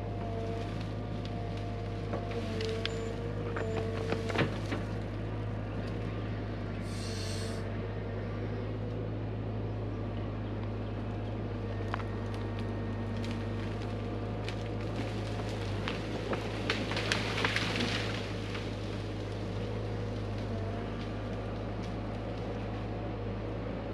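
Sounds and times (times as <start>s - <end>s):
excavator engine running: 0.0s - 23.9s
brief hiss: 6.9s - 7.6s.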